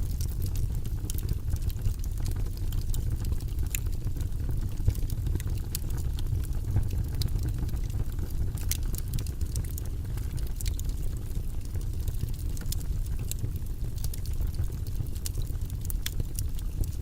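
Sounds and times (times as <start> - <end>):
fire crackles and pops: 0.0 - 17.0
fire flames rumbling: 0.0 - 17.0.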